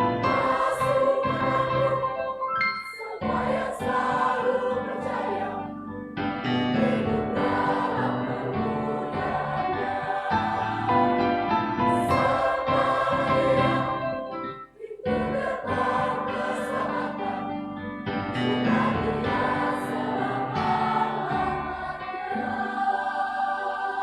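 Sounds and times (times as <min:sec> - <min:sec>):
choir singing a hymn: 0:00.0 - 0:24.0.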